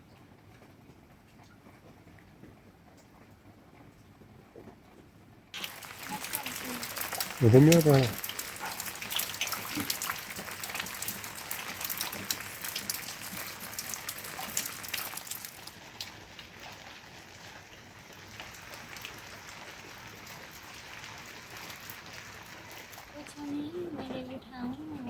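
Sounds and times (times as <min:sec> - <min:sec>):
raindrops striking close by: 0:00.0 - 0:25.0
steady rain hiss: 0:05.5 - 0:25.0.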